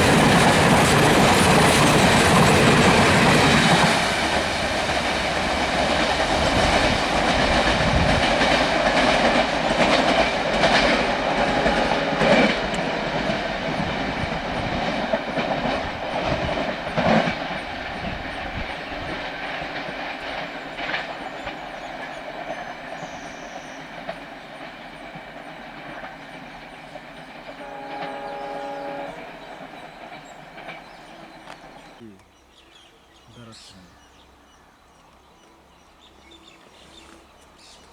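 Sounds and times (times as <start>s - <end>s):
train wheels clickety-clack: 0.0s - 32.0s
train horn: 9.8s - 17.3s, 27.4s - 30.8s.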